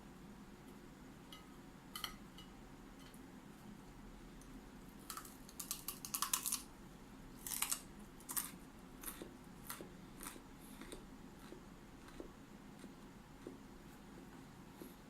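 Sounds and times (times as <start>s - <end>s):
broccoli crunching: 5.0s - 6.7s, 7.4s - 13.6s.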